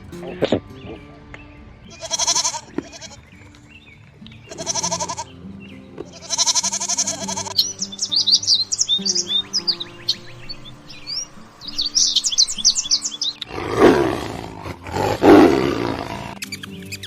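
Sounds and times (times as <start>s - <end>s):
small birds chirping: 0.0s - 17.0s
soft background music: 0.0s - 17.0s
large animal roaring: 13.4s - 16.4s.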